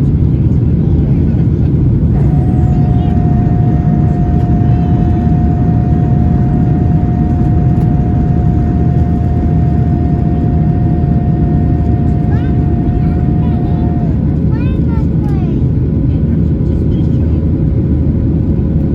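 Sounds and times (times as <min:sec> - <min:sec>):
jet engine roar: 0:00.2 - 0:18.9
steady tone: 0:02.1 - 0:14.9.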